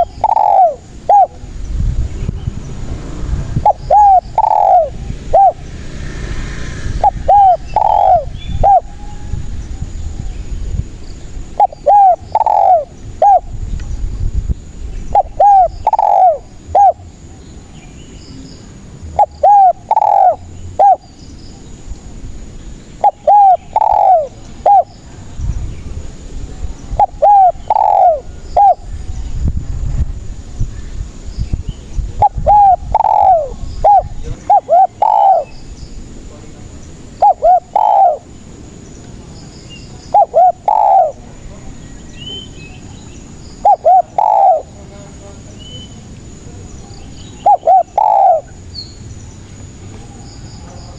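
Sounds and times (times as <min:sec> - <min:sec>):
dove cooing: 0:00.0 - 0:01.5, 0:03.5 - 0:05.8, 0:06.8 - 0:10.0, 0:11.4 - 0:13.6, 0:15.1 - 0:17.3, 0:19.1 - 0:21.1, 0:22.9 - 0:25.0, 0:26.9 - 0:29.0, 0:32.1 - 0:35.5, 0:37.0 - 0:38.5, 0:40.0 - 0:41.4, 0:43.6 - 0:44.8, 0:47.3 - 0:48.6
low background rumble: 0:00.0 - 0:50.9.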